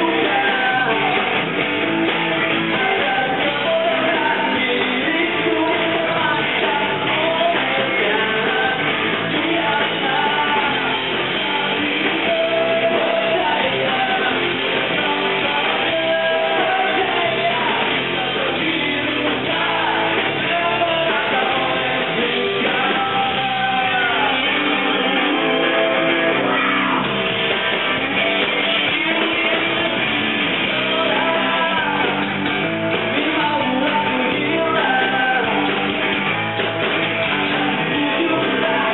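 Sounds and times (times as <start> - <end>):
person singing: 0.0 - 27.2, 27.8 - 36.2, 37.1 - 38.9
rock band playing live: 0.0 - 38.9.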